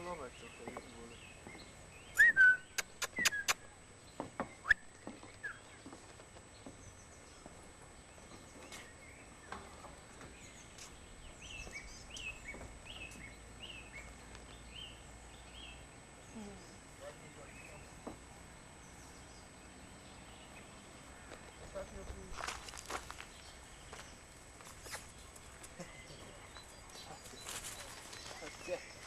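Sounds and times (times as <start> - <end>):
songbirds chirping: 0.0 - 29.0
sharp clicks: 2.2 - 3.7.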